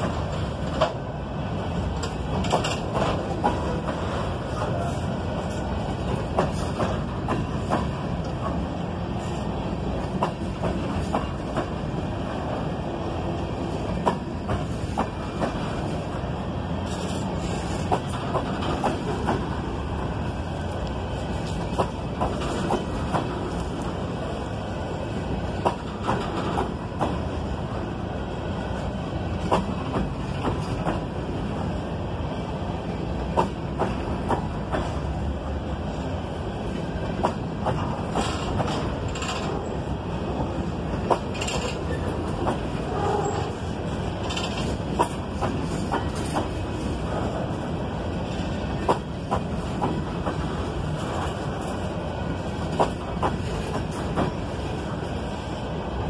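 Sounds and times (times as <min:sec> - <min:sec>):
train wheels rumbling on rails: 0:00.0 - 0:56.0
wheels clacking over rail joints: 0:02.0 - 0:04.8, 0:16.9 - 0:19.6, 0:25.6 - 0:27.2, 0:37.1 - 0:39.8, 0:40.4 - 0:47.4.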